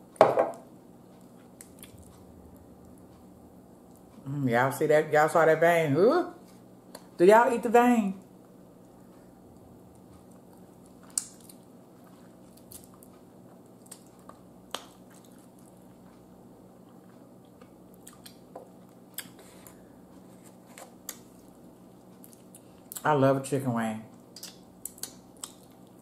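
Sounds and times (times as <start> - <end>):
low steady hum: 0.0 - 26.0
person chewing: 0.7 - 4.3, 8.4 - 23.0, 24.1 - 26.0
mouth clicks and smacks: 24.2 - 26.0.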